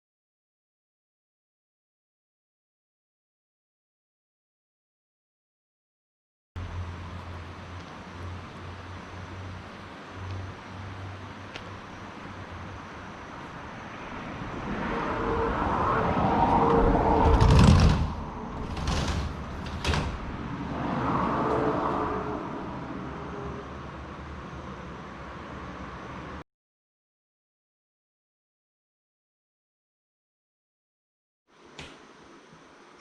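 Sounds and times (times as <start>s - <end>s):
train rumbling: 6.6s - 26.4s.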